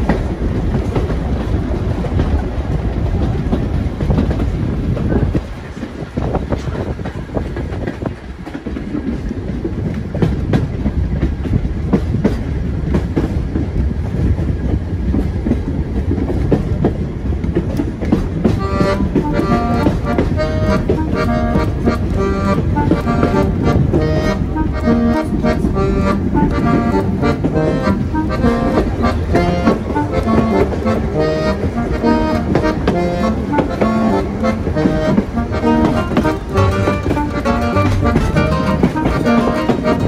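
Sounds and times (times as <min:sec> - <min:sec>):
train rumbling on track: 0:00.0 - 0:40.0
accordion music: 0:18.4 - 0:40.0.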